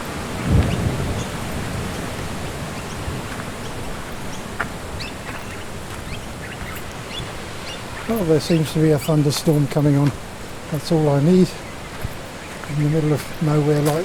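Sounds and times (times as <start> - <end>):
low thunder rumble: 0.0 - 4.2
wind in the trees: 0.0 - 14.0.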